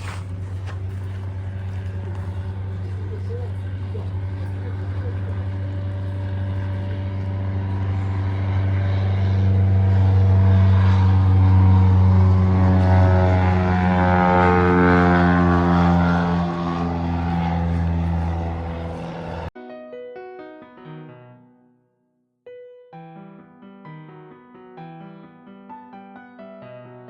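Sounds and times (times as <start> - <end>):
low engine drone passing by: 0.0 - 19.5.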